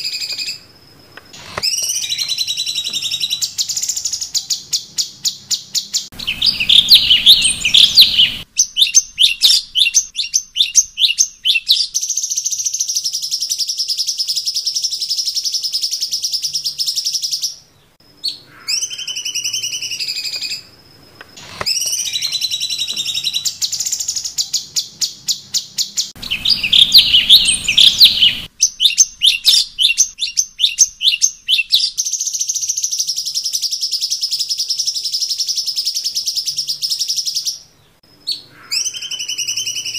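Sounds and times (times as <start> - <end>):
bird singing rapid high notes: 1.4 - 17.6, 21.4 - 39.9
harsh bird chattering: 6.2 - 11.9, 26.1 - 32.0.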